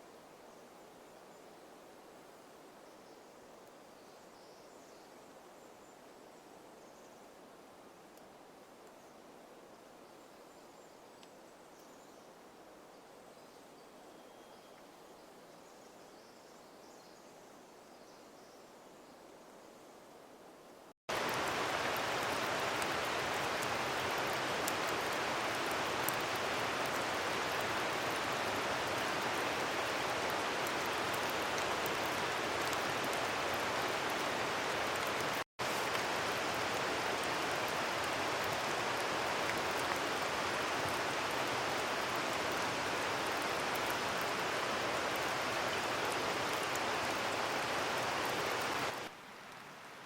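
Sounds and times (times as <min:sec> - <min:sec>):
steady rain falling: 0:19.4 - 0:50.0
rain drop ticks: 0:21.1 - 0:42.1.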